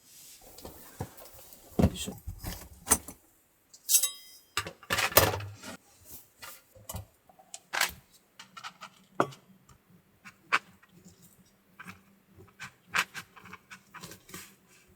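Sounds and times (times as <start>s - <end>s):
knocks and rustles of handling: 0.2s - 3.2s
sharp metallic clink: 3.9s - 4.6s.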